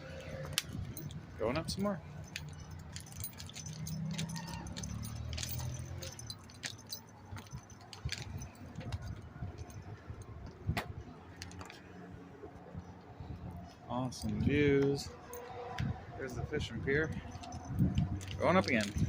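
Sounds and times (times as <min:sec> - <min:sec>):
light jingling: 0:00.2 - 0:10.6, 0:16.2 - 0:19.0.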